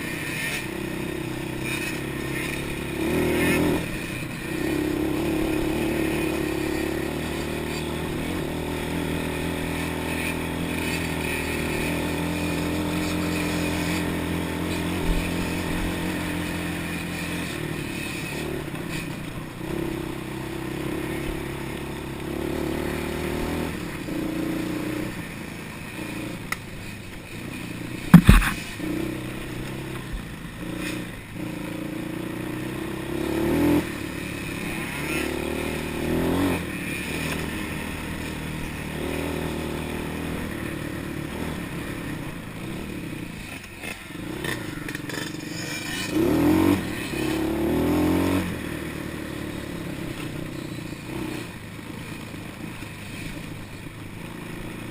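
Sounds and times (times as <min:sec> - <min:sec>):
motorbike engine revving: 0:00.0 - 0:54.9
loud sharp knock: 0:28.1 - 0:28.6.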